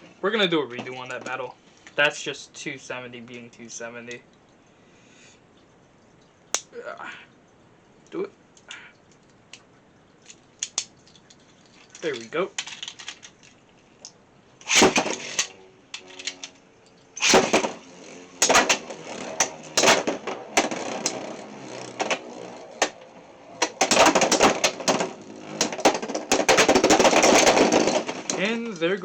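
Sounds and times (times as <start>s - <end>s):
spinning tops clashing: 14.6s - 29.0s
spinning tops whirring: 14.6s - 29.0s.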